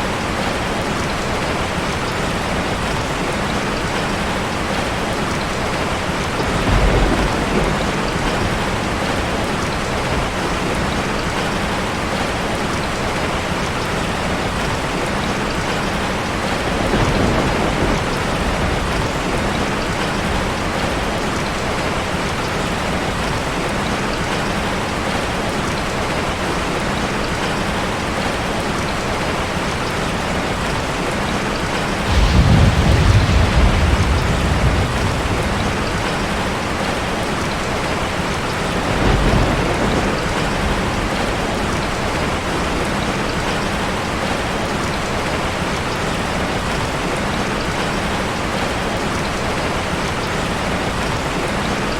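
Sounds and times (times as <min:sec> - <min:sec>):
low rumbles: 0:32.0 - 0:37.4.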